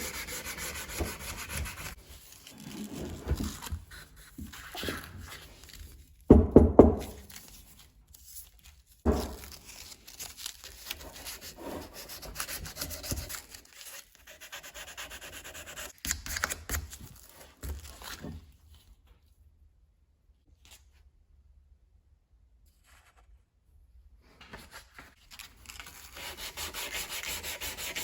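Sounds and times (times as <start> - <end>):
hand sanding metal: 0.0 - 2.0, 26.2 - 28.0.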